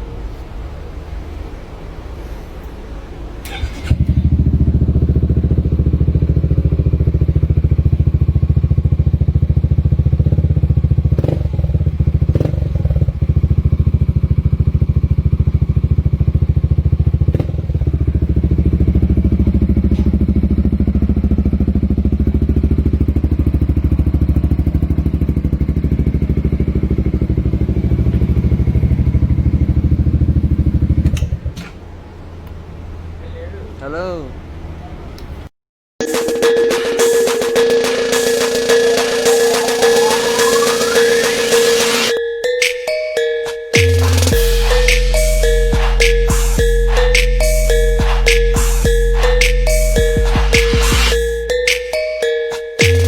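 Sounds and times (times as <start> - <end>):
motorcycle engine running: 3.9 - 31.5.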